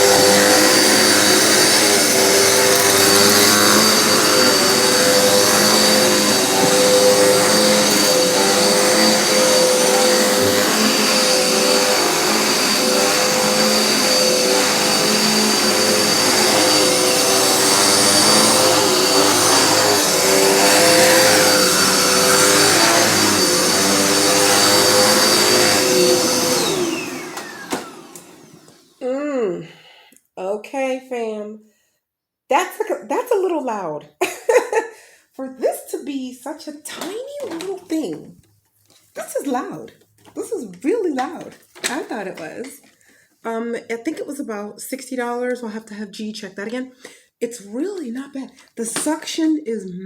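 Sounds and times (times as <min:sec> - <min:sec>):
vacuum cleaner whining: 0:00.0 - 0:29.0, 0:36.9 - 0:38.3, 0:39.2 - 0:43.2
vacuum cleaner winding down: 0:00.0 - 0:29.0, 0:37.4 - 0:37.9.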